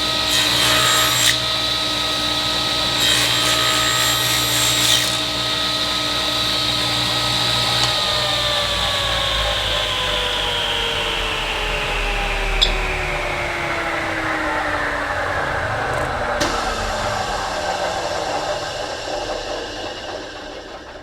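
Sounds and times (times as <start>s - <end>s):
cutter cutting wood: 0.0s - 21.0s
spindle shaper motor whine: 0.0s - 21.0s
motor spinning down: 4.8s - 21.0s.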